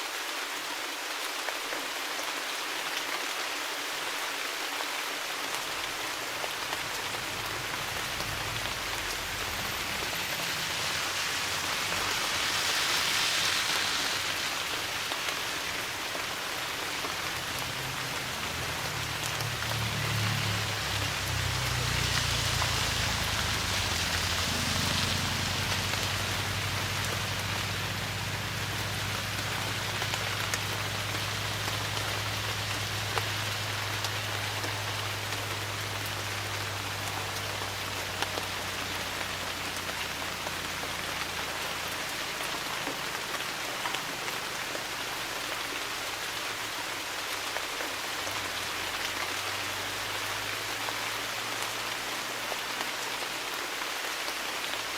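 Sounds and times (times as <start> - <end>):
steady rain falling: 0.0 - 54.9
low rumble: 5.7 - 37.4.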